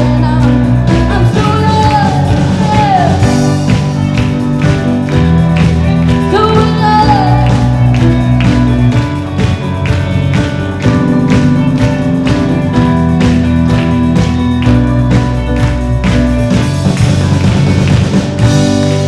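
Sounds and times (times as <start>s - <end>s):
person singing: 0.0s - 3.6s, 6.2s - 8.0s
live band playing: 0.0s - 19.0s.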